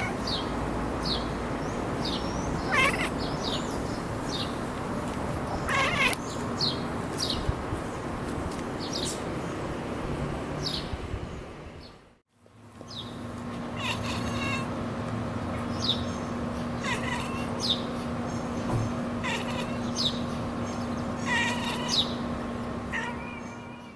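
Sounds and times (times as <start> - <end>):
birds chirping: 0.0 - 9.8, 10.6 - 12.0, 12.8 - 23.9
cat chattering: 2.0 - 3.9, 5.5 - 6.2, 13.7 - 14.7, 15.5 - 23.9.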